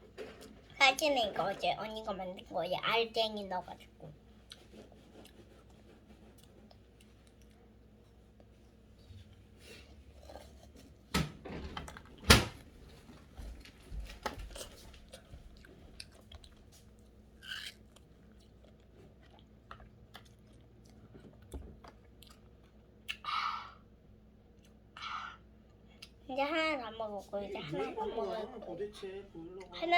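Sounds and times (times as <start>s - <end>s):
child chewing and crunching ice: 3.1s - 8.5s, 9.3s - 11.1s, 13.0s - 23.3s.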